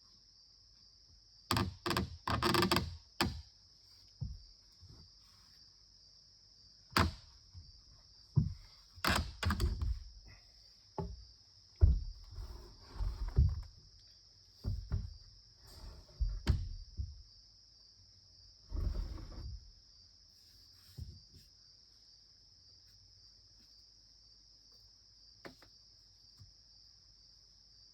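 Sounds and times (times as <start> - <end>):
knocks and thuds: 4.2 - 4.6, 8.3 - 10.2, 11.0 - 13.8, 14.6 - 15.3, 16.1 - 17.3.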